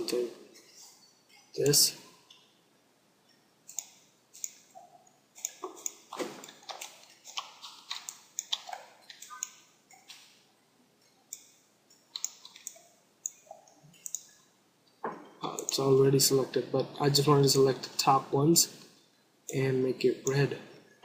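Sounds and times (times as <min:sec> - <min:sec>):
computer mouse clicking: 0:03.7 - 0:10.3, 0:11.2 - 0:14.4.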